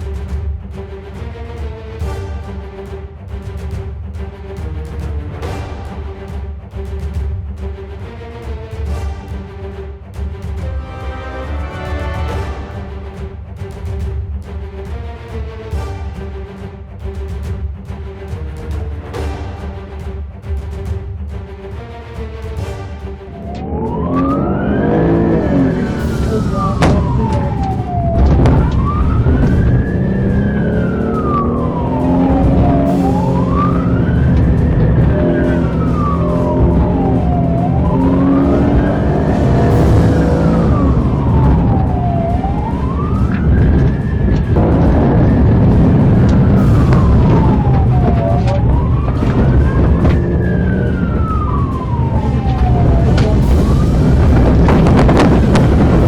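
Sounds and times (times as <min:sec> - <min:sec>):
low droning road noise: 0:23.2 - 0:56.0
emergency siren wailing: 0:23.3 - 0:56.0
low rumble of traffic: 0:23.4 - 0:56.0
sharp knocks: 0:25.9 - 0:30.2.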